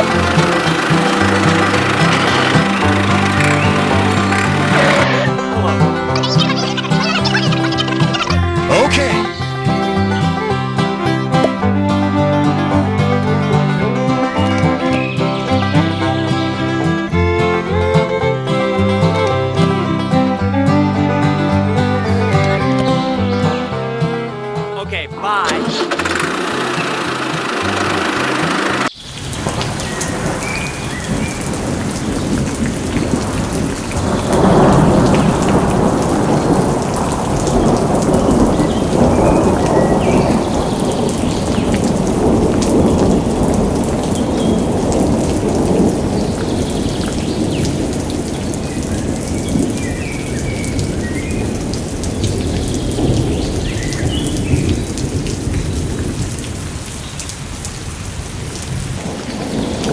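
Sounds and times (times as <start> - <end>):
heavy rain: 0.0 - 59.9
rolling thunder: 29.1 - 59.9.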